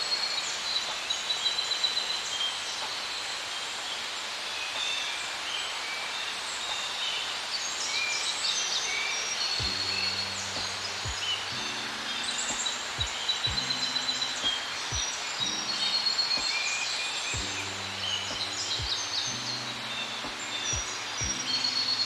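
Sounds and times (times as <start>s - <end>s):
small birds chirping and trilling: 0.0s - 22.0s
steady outdoor hiss: 0.0s - 22.0s
faint low hum: 9.6s - 22.0s.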